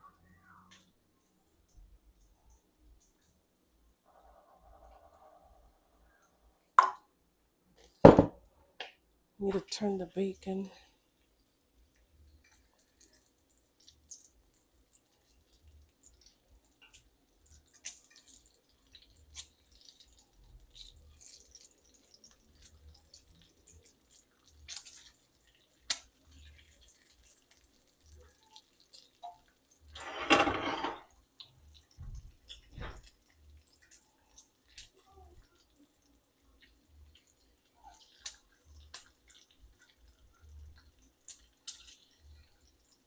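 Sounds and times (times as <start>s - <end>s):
fat crackling and popping: 7.7s - 43.0s
bacon frying in a pan: 9.6s - 43.0s.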